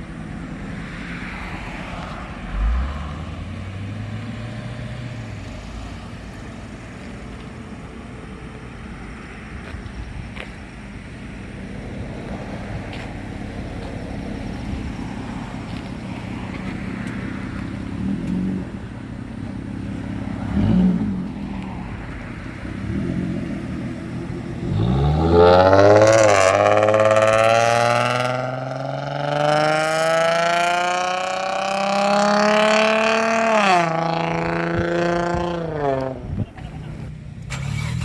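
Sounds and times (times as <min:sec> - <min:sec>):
car accelerating hard: 0:01.3 - 0:05.5, 0:19.7 - 0:38.0
car engine idling with throttle blips: 0:34.2 - 0:38.0.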